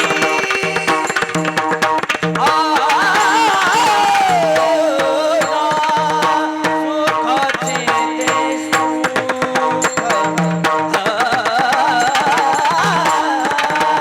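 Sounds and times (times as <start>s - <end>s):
person singing ornamented phrase: 0.0s - 1.6s
drum strokes: 0.0s - 2.8s.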